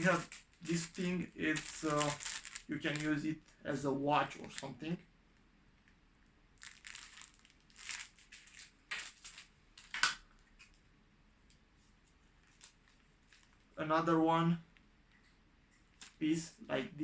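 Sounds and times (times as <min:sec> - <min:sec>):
plastic packaging crinkling: 0:00.0 - 0:03.6, 0:04.3 - 0:04.8, 0:06.6 - 0:10.2, 0:12.4 - 0:13.8, 0:15.9 - 0:16.2.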